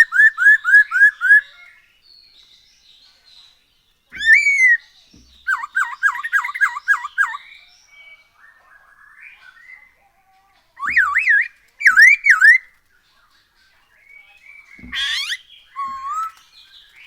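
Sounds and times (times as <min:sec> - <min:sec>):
bird twittering: 0:00.0 - 0:01.7, 0:04.1 - 0:04.8, 0:05.4 - 0:07.6, 0:10.8 - 0:12.7, 0:14.1 - 0:17.0
songbird whistling: 0:00.0 - 0:01.8, 0:04.1 - 0:10.0, 0:10.8 - 0:12.7, 0:14.1 - 0:17.0.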